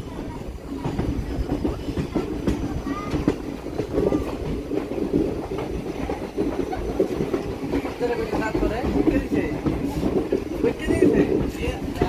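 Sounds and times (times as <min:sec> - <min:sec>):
train wheels rumbling: 0:00.0 - 0:12.0
clicks and clatter over track: 0:00.1 - 0:12.0.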